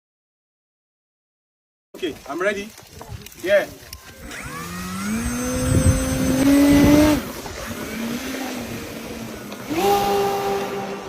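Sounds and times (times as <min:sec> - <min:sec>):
aircraft propeller droning: 0:04.1 - 0:11.0.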